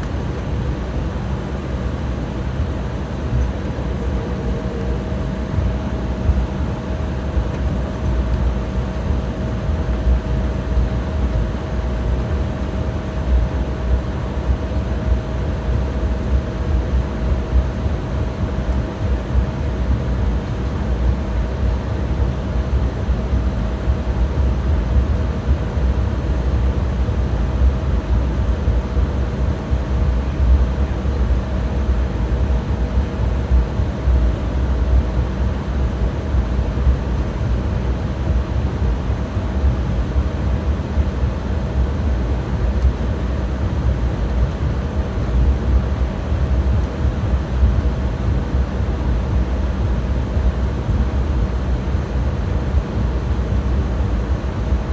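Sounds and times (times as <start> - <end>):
airliner cabin jet engine rumble: 0.0 - 54.9
faint steady whine: 0.0 - 54.9.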